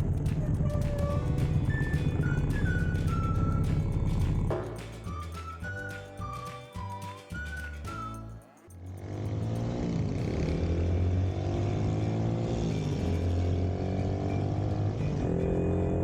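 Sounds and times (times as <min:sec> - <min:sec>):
small motorcycle engine running: 0:09.0 - 0:16.0.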